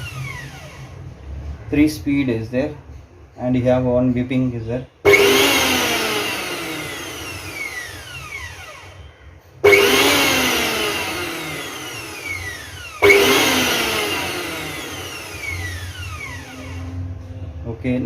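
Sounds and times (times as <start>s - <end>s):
mixer grinder motor whine: 0.0s - 1.7s, 5.0s - 17.4s.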